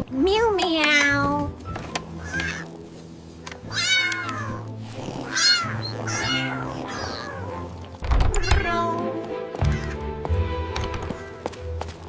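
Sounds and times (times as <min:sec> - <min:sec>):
light background music: 0:00.0 - 0:12.0
cat meowing: 0:00.8 - 0:01.4, 0:02.2 - 0:02.7, 0:03.6 - 0:07.7, 0:08.3 - 0:10.0.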